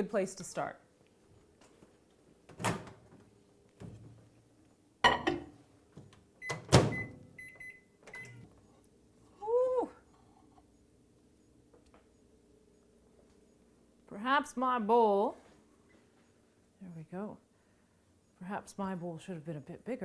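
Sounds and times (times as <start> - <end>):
electronic keypad beeps: 6.4 - 8.4
microwave door and bowl clunks: 6.5 - 7.2.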